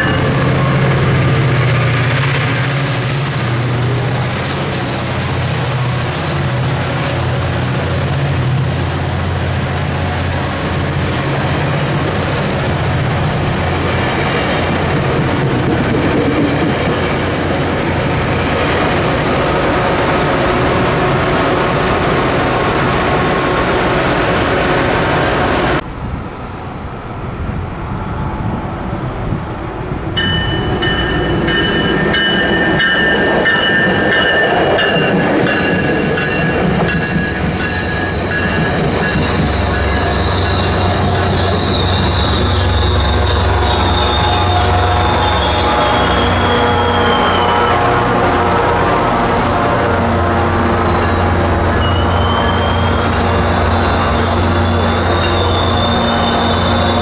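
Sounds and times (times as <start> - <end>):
train rumbling and rattling: 0.0 - 57.0
train wheels squealing: 30.2 - 57.0.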